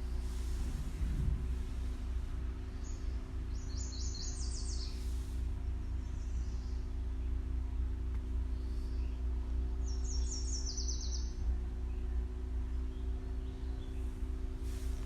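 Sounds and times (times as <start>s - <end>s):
faint hum: 0.0s - 15.0s
steady low rumble: 0.0s - 15.0s
songbird singing: 1.5s - 15.0s.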